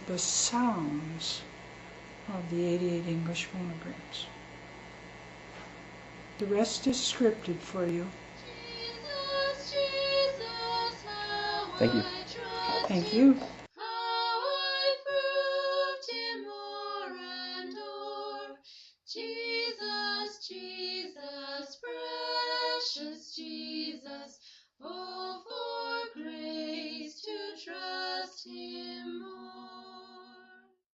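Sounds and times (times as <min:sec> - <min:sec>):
high singing voice: 0:06.4 - 0:30.7.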